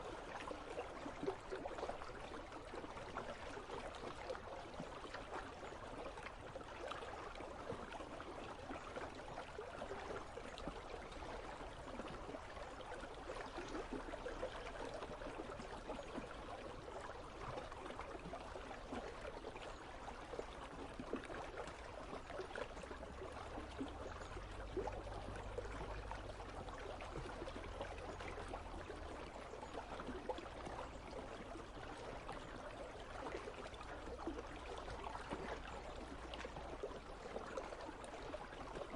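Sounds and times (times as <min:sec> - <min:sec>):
river babbling and trickling: 0:00.0 - 0:38.9
faint low rumble: 0:09.5 - 0:38.9.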